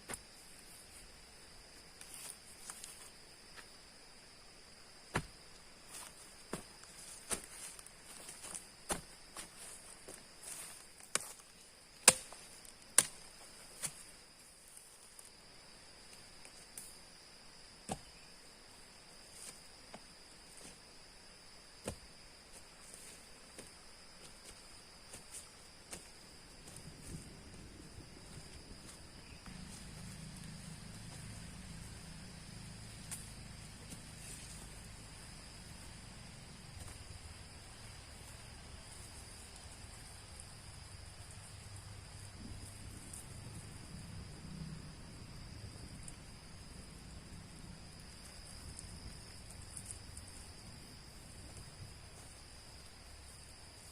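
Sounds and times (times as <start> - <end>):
insect drone: 0.0 - 53.9
wood being chopped: 5.1 - 5.3, 12.0 - 14.0.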